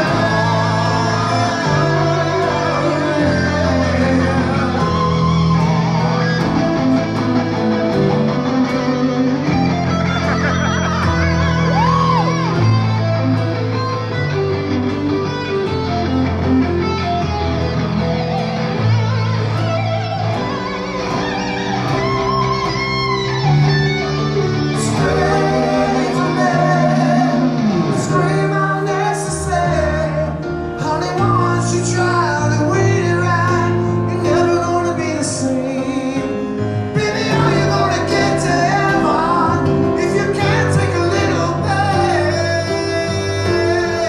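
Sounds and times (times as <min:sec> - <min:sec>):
electric guitar bent notes: 0:00.0 - 0:32.0
bass guitar: 0:00.0 - 0:44.0
rock band playing live: 0:00.0 - 0:44.0.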